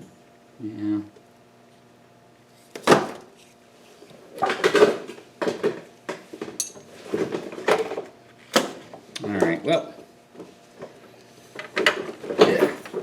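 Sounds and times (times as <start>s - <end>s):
metal tools clinking and rattling: 6.6s - 6.9s.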